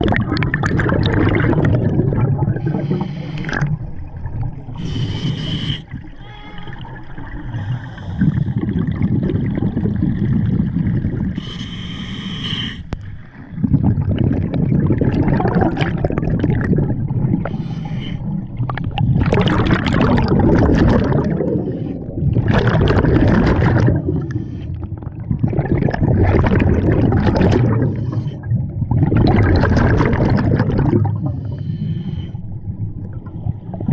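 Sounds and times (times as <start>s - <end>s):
bubbling exhalations underwater: 0.0s - 11.6s, 13.4s - 31.6s, 32.7s - 33.9s
hissing regulator inhalations: 2.6s - 3.6s, 4.8s - 6.0s, 11.4s - 13.2s.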